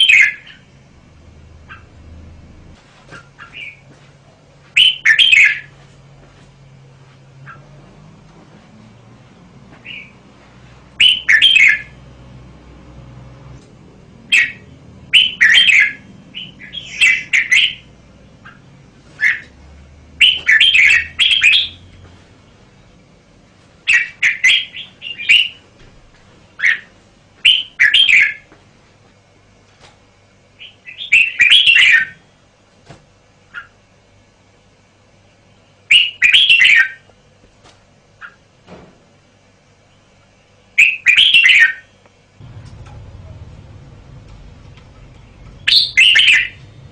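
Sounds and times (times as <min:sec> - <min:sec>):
bird singing warbled phrases: 0:00.0 - 0:00.8, 0:03.2 - 0:03.9, 0:04.8 - 0:05.7, 0:09.8 - 0:10.2, 0:11.0 - 0:12.0, 0:14.2 - 0:19.6, 0:20.2 - 0:21.9, 0:23.9 - 0:25.6, 0:26.6 - 0:28.4, 0:30.6 - 0:32.3, 0:35.6 - 0:37.0, 0:40.8 - 0:42.0, 0:45.0 - 0:46.8.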